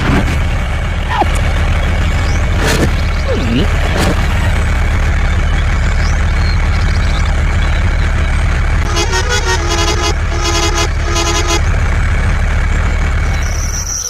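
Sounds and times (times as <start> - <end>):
vehicle engine running: 0.0 - 14.0
horn short toots: 8.8 - 11.7.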